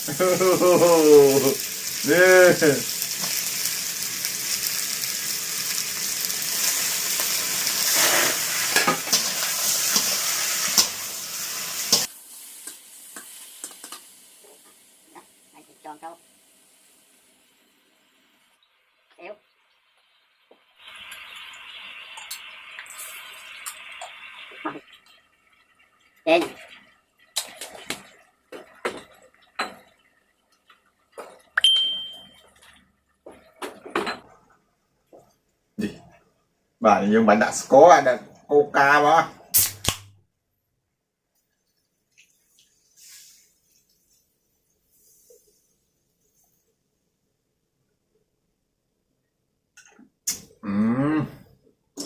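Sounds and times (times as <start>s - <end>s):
seafood sizzling in a pan: 0.0s - 25.1s
sharp ringing clink: 31.6s - 32.4s.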